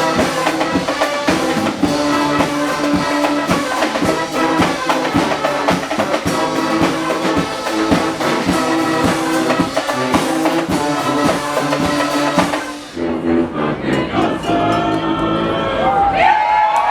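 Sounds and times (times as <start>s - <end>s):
steady drum beat: 0.0s - 13.0s
loud brass band: 0.0s - 14.8s.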